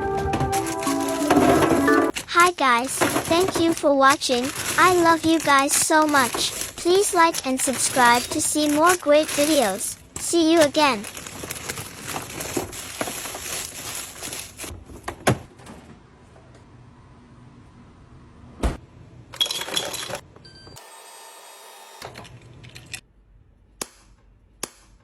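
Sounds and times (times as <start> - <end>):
items clicking and clinking: 0.2 - 15.2, 19.4 - 20.3.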